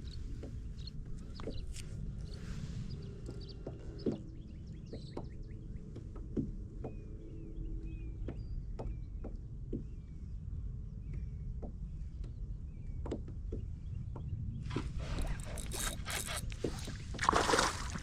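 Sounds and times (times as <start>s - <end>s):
bird chirping faintly: 14.7s - 18.0s
fish splashing in water: 15.6s - 18.0s.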